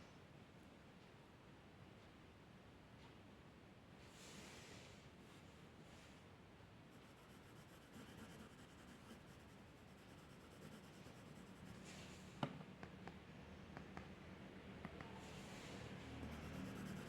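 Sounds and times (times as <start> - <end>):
drawing tool scratching paper: 7.0 - 11.9, 16.1 - 17.0.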